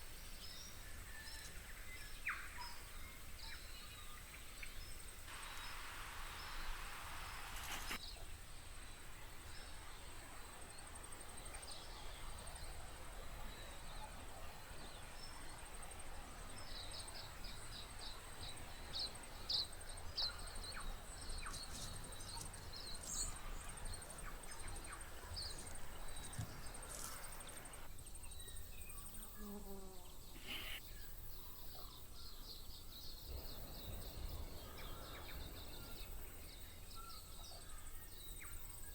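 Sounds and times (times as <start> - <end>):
birdsong: 0.0 - 38.9
low warbling bird song: 0.0 - 38.9
faint high insect-like buzz: 5.2 - 8.0, 14.6 - 31.1.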